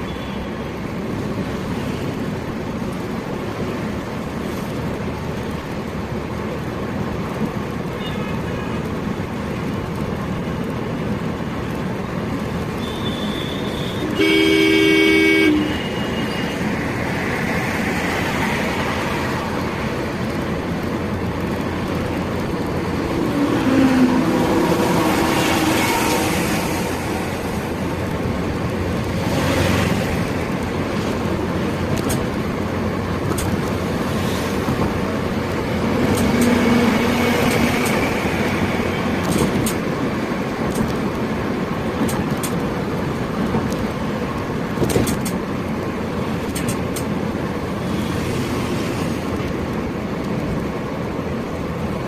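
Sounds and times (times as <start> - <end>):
car road and engine noise: 0.0 - 52.0
vehicle horn honking: 12.8 - 16.5.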